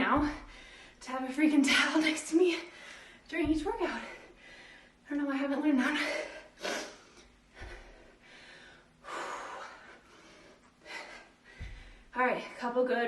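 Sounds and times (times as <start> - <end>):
dull low thud: 0.1 - 0.6, 3.4 - 4.0, 11.5 - 12.0
woman breathing hard: 0.3 - 1.0, 4.0 - 5.0, 6.0 - 12.1.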